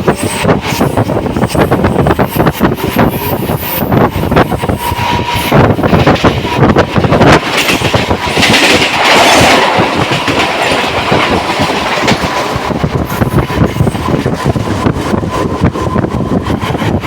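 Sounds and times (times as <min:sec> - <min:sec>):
train rushing noise: 0:00.0 - 0:17.0
train wheels clattering on rails: 0:00.0 - 0:17.0.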